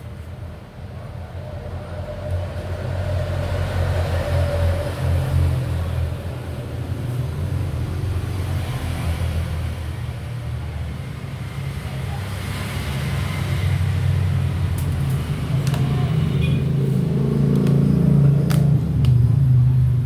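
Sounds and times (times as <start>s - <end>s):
vehicle engine rumble: 10.4s - 20.0s.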